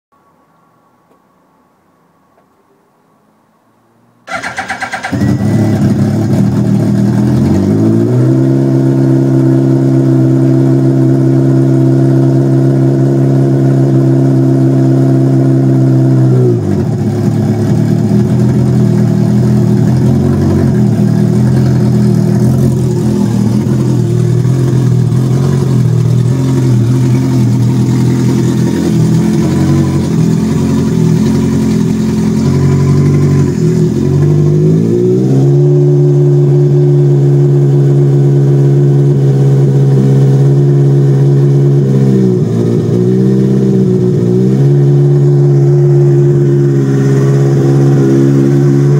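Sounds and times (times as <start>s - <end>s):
engine starting and revving: 4.3s - 10.5s, 19.8s - 36.4s.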